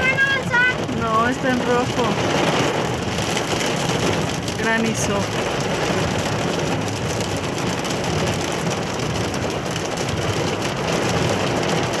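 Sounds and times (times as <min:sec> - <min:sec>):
hail and rain pelting a car: 0:00.0 - 0:12.0.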